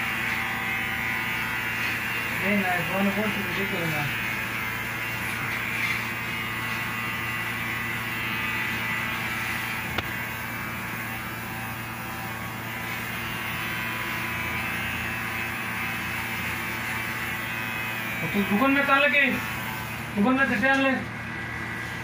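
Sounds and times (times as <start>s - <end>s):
electric hair clippers buzzing: 0.0s - 22.0s.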